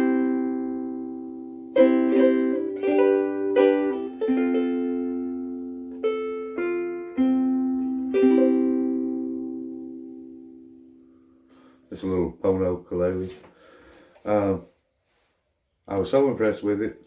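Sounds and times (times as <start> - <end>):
ukulele strumming chords: 0.0 - 11.8.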